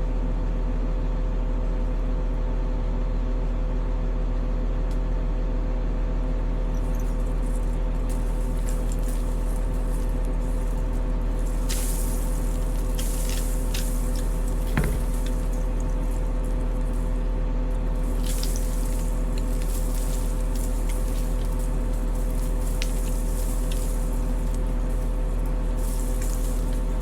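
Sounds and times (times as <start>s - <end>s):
diesel engine running: 6.5s - 27.0s
crackling clicks and hiss: 7.0s - 27.0s.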